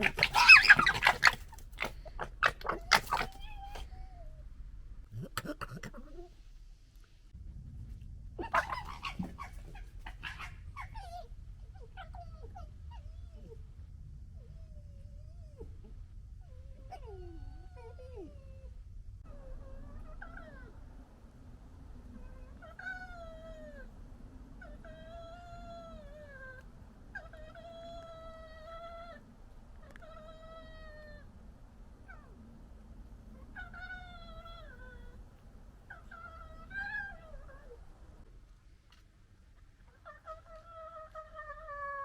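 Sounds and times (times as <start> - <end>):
fox high-pitched cries: 0.0 - 4.2, 8.4 - 13.5, 33.3 - 35.2, 35.9 - 37.8.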